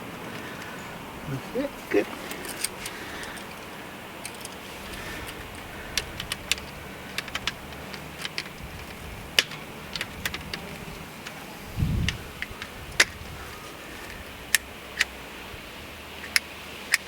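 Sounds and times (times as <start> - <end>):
track pieces clicking and clinking: 2.1 - 13.1.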